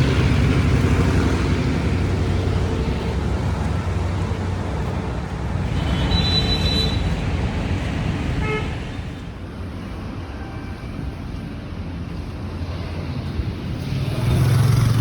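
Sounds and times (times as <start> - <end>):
road traffic rumbling: 0.0 - 15.0
vehicle horn: 5.7 - 7.2, 8.4 - 8.8.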